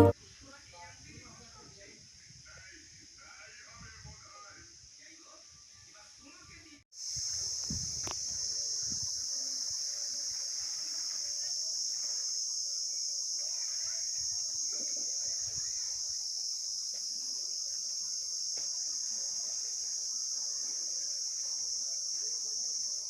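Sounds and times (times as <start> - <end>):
high-pitched insect chorus: 7.0 - 23.0.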